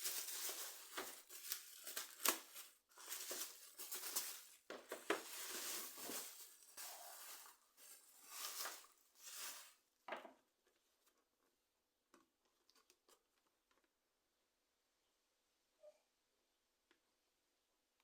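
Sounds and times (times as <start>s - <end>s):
packaging rustling and tearing: 0.0s - 9.7s.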